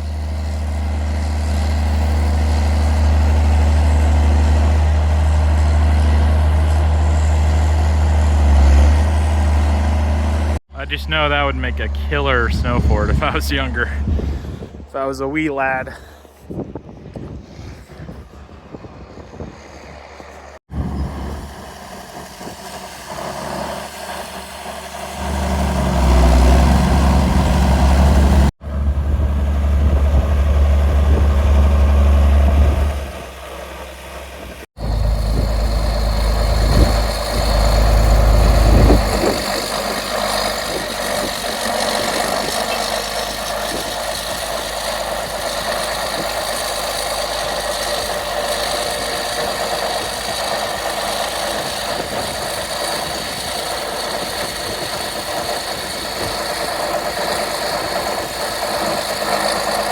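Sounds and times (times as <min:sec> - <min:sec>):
engine running: 0:00.0 - 0:17.0, 0:18.1 - 0:59.9
heavy low rumble: 0:09.0 - 0:17.4, 0:26.2 - 0:52.8.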